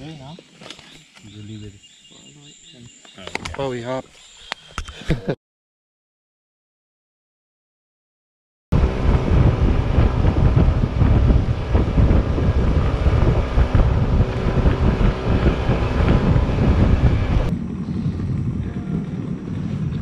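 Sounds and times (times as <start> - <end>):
outboard engine hum: 8.7 - 20.0
wind buffeting microphone: 8.7 - 20.0.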